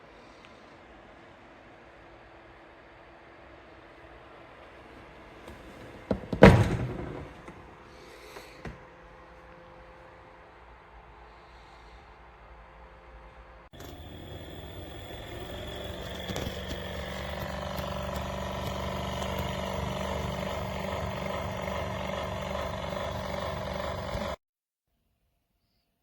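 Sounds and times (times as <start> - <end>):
mechanical motor hum: 13.8 - 24.4.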